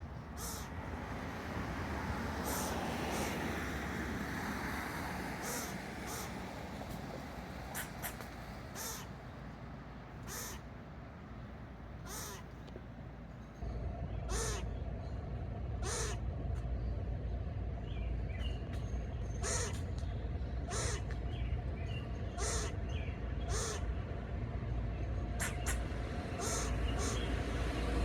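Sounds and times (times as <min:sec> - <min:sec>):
bird calling: 0:00.3 - 0:00.8, 0:02.4 - 0:03.5, 0:05.4 - 0:06.5, 0:07.7 - 0:09.3, 0:10.2 - 0:10.7, 0:12.0 - 0:12.7, 0:14.2 - 0:14.8, 0:15.8 - 0:16.2, 0:19.4 - 0:20.0, 0:20.7 - 0:21.2, 0:22.3 - 0:23.9, 0:25.4 - 0:27.4
crow cawing: 0:00.4 - 0:00.7, 0:02.4 - 0:03.4, 0:05.4 - 0:06.4, 0:07.7 - 0:09.2, 0:10.2 - 0:10.7, 0:12.0 - 0:12.5, 0:14.3 - 0:14.7, 0:15.8 - 0:16.2, 0:19.4 - 0:19.8, 0:20.7 - 0:21.1, 0:22.4 - 0:22.8, 0:23.5 - 0:23.9, 0:26.4 - 0:27.3
steady low rumble: 0:05.4 - 0:28.0.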